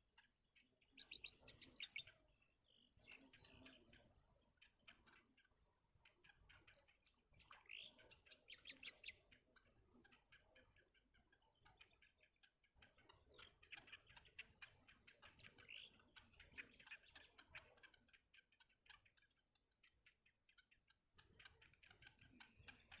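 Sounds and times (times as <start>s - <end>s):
nestlings chirping: 0.0s - 23.0s.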